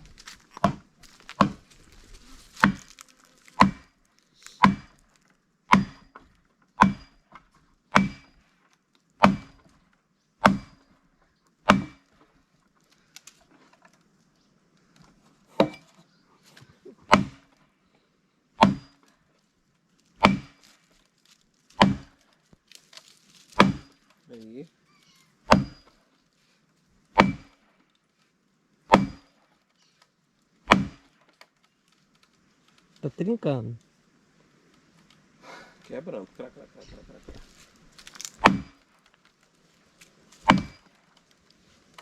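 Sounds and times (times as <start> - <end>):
axe striking a log: 0.2 - 1.7, 2.5 - 4.0, 4.6 - 5.0, 5.7 - 8.4, 9.2 - 9.7, 10.4 - 10.9, 11.6 - 12.1, 17.1 - 17.6, 18.6 - 19.0, 20.2 - 20.8, 21.7 - 22.2, 23.5 - 24.0, 25.4 - 26.0, 27.2 - 27.6, 28.9 - 29.4, 30.6 - 31.2, 38.0 - 38.9, 40.4 - 40.9.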